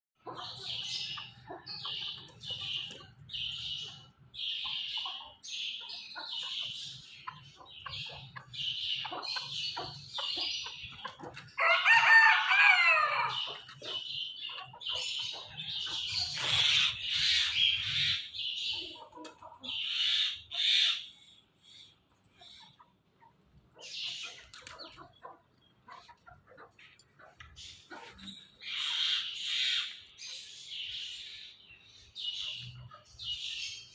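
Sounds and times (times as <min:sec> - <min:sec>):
chickens calling: 0:00.2 - 0:33.9
rooster crowing: 0:11.6 - 0:13.4.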